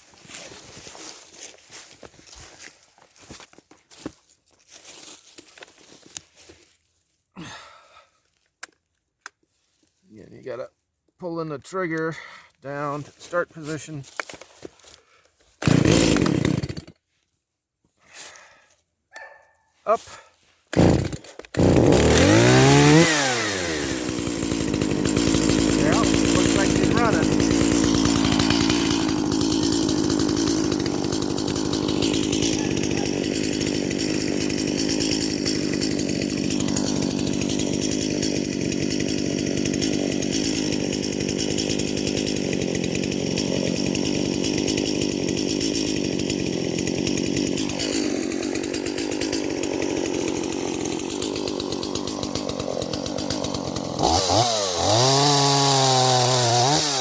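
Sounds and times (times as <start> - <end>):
chainsaw idling: 15.6 - 17.0, 20.7 - 57.0
chainsaw revving: 15.6 - 17.0, 20.7 - 57.0.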